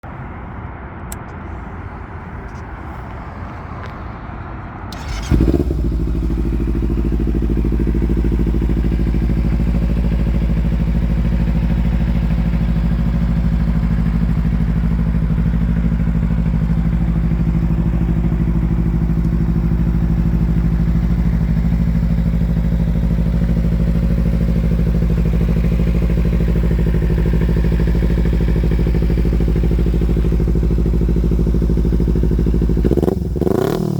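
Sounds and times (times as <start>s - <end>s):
motorcycle engine starting and idling: 4.9s - 33.9s.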